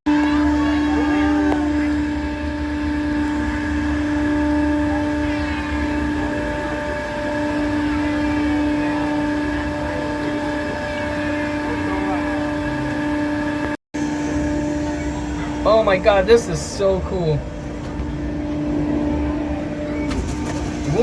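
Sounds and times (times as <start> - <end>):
ride machinery humming: 0.1 - 21.0.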